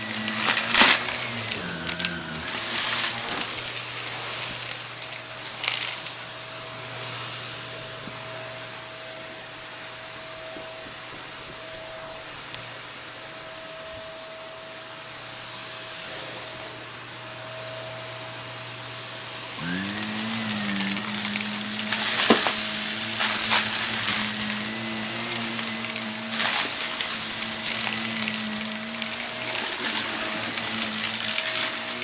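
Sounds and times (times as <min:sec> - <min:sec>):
debris crunching in vacuum: 0:00.0 - 0:07.4, 0:19.6 - 0:32.0
vacuum cleaner running: 0:00.0 - 0:32.0.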